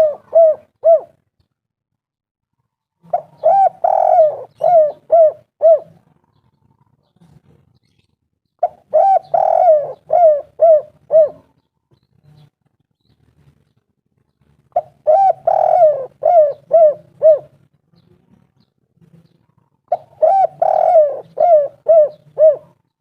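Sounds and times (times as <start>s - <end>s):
dove cooing: 0.0s - 1.2s, 3.0s - 6.9s, 8.6s - 11.7s, 14.7s - 17.7s, 19.9s - 22.9s.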